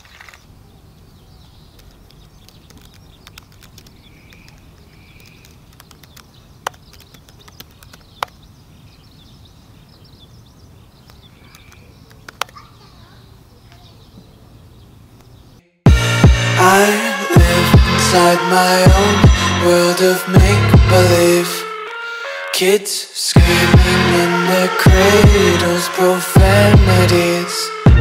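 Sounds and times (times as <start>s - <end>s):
sharp clicks: 1.7s - 8.4s, 11.0s - 12.6s
steady low rumble: 17.4s - 18.2s, 18.9s - 19.8s, 20.4s - 21.3s, 23.4s - 24.2s, 24.9s - 25.6s, 26.4s - 27.2s.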